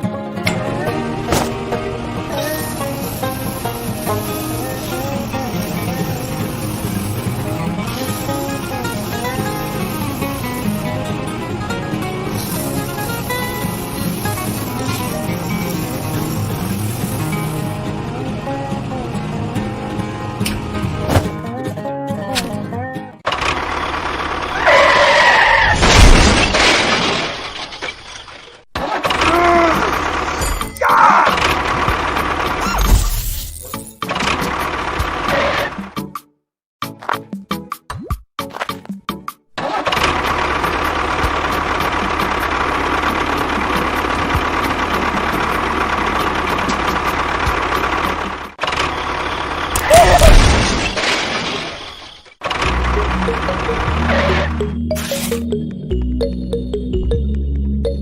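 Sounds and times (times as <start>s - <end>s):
loud shattering crash: 25.6s - 28.6s, 49.8s - 52.4s.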